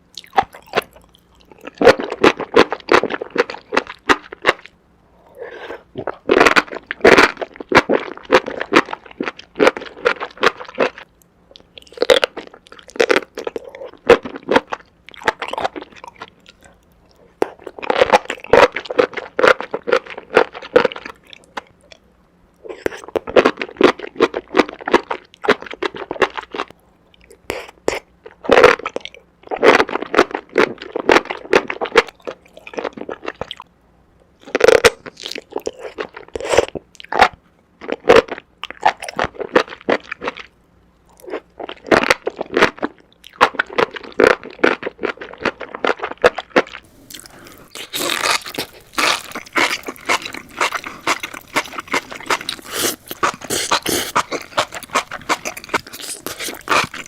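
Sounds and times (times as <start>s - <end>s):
close crunchy chewing: 0.1s - 22.0s, 34.4s - 57.0s.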